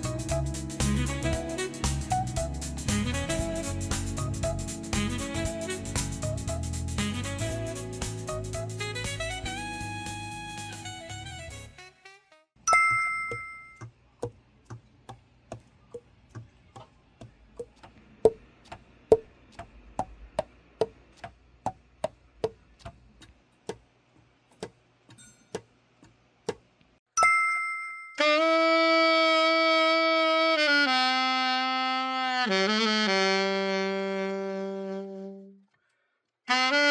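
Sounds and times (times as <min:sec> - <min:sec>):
two-tone chime: 0:12.7 - 0:13.8, 0:27.2 - 0:28.2.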